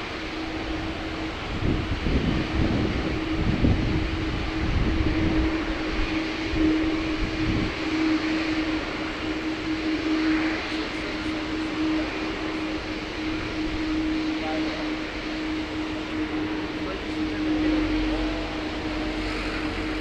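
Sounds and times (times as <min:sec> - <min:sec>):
jet engines taxiing: 0:00.0 - 0:20.0.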